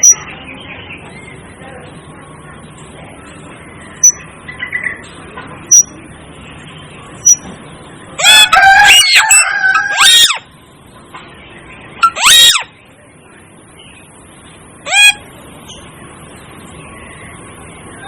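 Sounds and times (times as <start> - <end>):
starling calling: 0.0 - 0.3, 5.7 - 6.0, 8.2 - 10.5, 11.9 - 12.8, 14.8 - 16.0.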